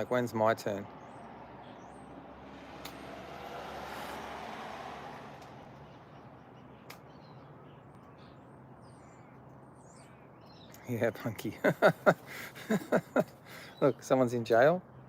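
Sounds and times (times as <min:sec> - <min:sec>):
vehicle passing: 0:00.6 - 0:07.6
faint bird chirps: 0:05.7 - 0:15.0.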